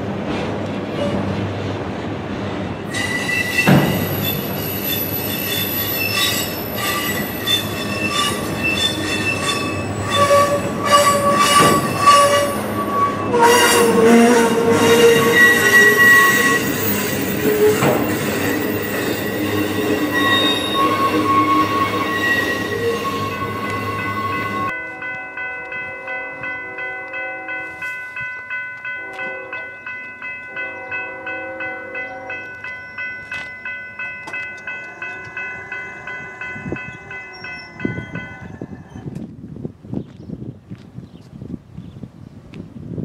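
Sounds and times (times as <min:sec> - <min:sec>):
train wheel and rail rumble: 0:00.0 - 0:43.0
high wheel squeals: 0:02.9 - 0:24.7
sharp clunks from train cars: 0:03.5 - 0:04.5, 0:11.5 - 0:12.0, 0:17.4 - 0:18.2.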